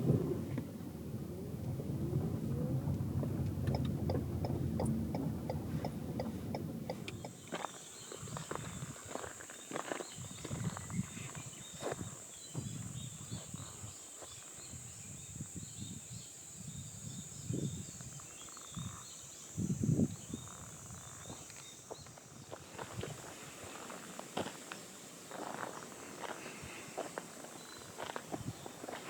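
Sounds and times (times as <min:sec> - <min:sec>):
steady high-pitched drone: 0:00.0 - 0:07.4.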